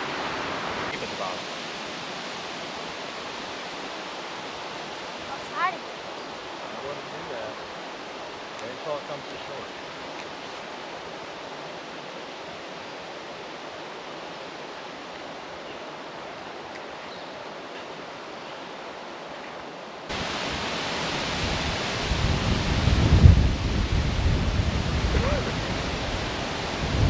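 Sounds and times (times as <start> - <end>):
steady outdoor hiss: 0.0 - 27.0
wind buffeting microphone: 20.1 - 27.0.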